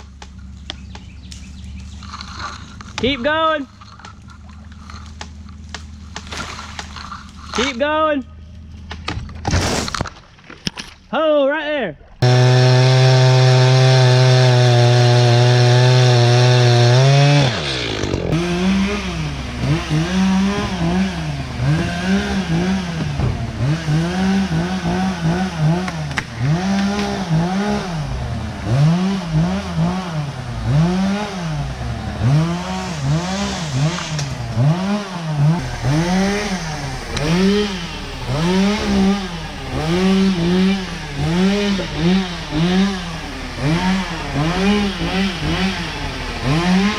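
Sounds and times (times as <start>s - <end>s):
engine revving: 12.2s - 46.9s.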